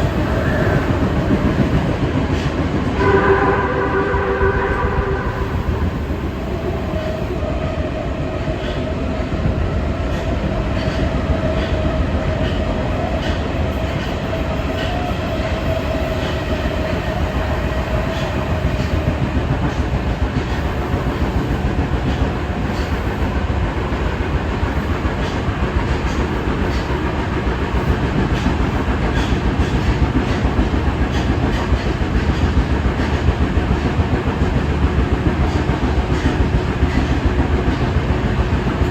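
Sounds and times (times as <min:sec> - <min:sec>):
wheels rumbling on rail: 0:00.0 - 0:38.9.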